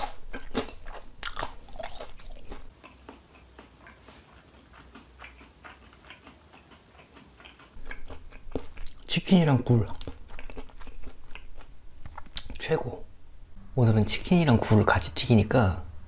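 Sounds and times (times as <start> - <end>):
chewing fried chicken: 0.0 - 12.6.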